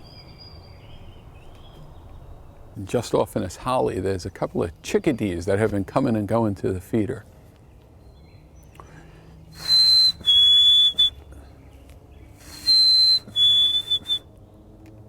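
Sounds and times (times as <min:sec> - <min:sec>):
hiss: 0:12.4 - 0:12.9.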